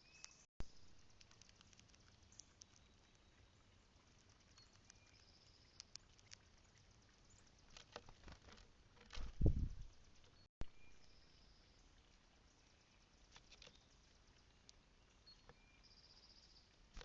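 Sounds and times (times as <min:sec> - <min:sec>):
bird pecking on a feeder: 0:01.0 - 0:03.1.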